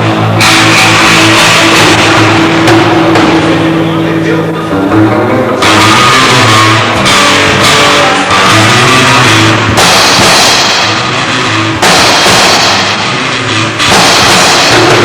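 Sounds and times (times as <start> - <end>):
cymbals crashing: 0.0 - 4.4, 5.6 - 15.0
rock band playing: 0.0 - 15.0.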